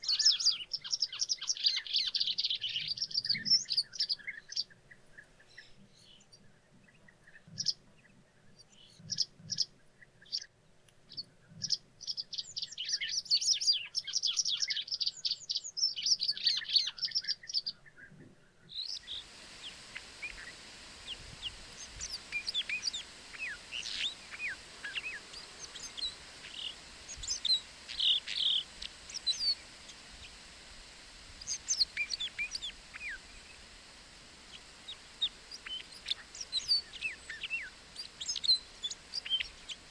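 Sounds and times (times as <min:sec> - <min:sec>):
small songbirds chirping: 0:18.8 - 0:39.9
steady hiss: 0:18.9 - 0:39.9.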